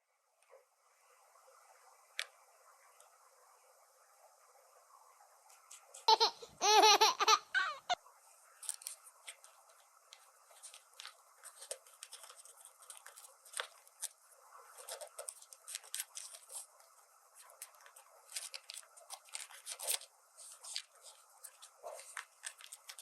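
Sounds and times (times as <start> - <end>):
packaging rustling: 8.6 - 14.2, 14.8 - 16.7, 17.6 - 23.0.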